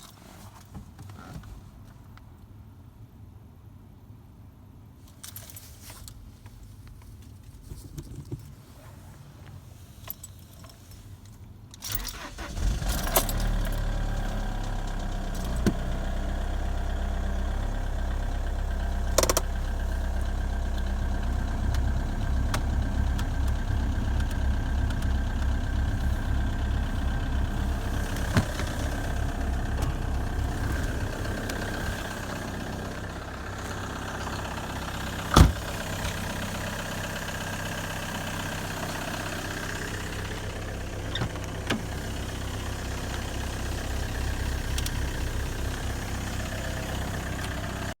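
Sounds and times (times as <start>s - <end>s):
diesel engine starting and idling: 11.9s - 48.0s.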